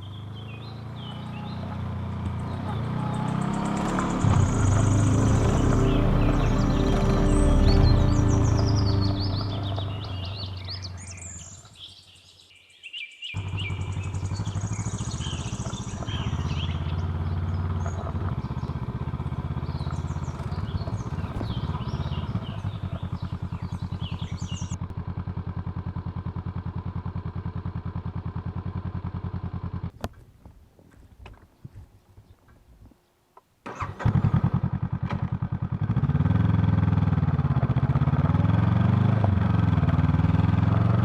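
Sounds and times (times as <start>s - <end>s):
motorcycle engine idling: 0.0s - 11.9s, 13.4s - 30.2s, 33.7s - 41.0s
birds chirping: 0.0s - 24.8s.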